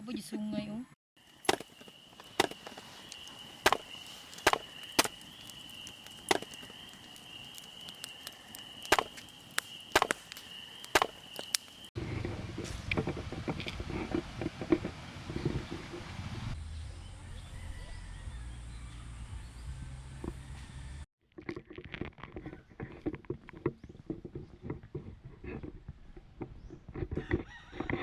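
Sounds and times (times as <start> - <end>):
rustling and handling noise: 1.2 - 9.4.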